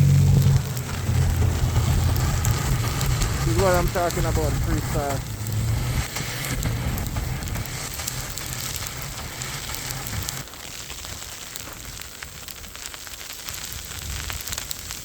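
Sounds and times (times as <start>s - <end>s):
low wind rumble: 0.0s - 10.5s
blowing snow hiss: 0.0s - 15.0s.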